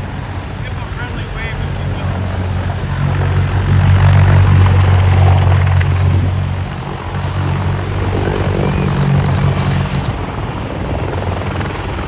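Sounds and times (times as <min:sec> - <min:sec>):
helicopter flying past: 0:00.0 - 0:12.0.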